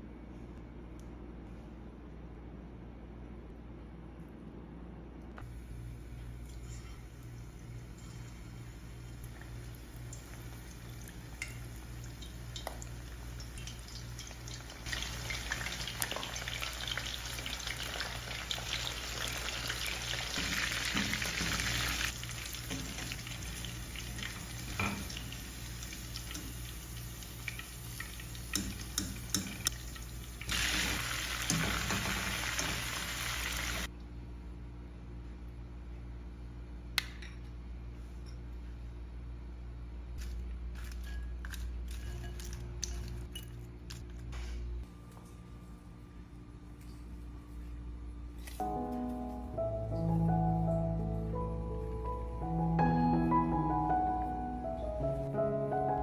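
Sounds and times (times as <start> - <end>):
food sizzling in frying pan: 8.7 - 33.9.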